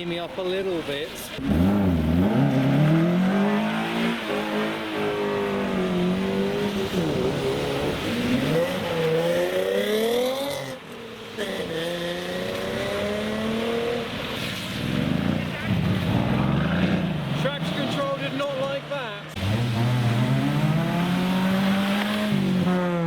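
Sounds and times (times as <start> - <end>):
car engine accelerating: 1.4 - 10.7, 19.3 - 23.0.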